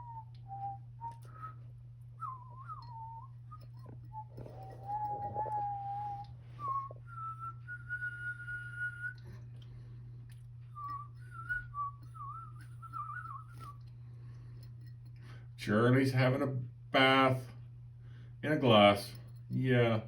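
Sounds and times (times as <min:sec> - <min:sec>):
person whistling: 0:00.0 - 0:09.4, 0:10.8 - 0:13.8
steady low hum: 0:00.0 - 0:20.0.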